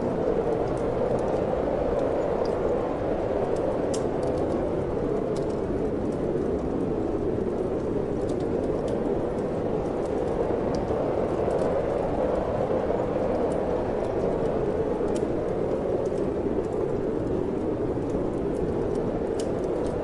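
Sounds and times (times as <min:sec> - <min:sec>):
wood fire crackling: 0:00.1 - 0:20.0.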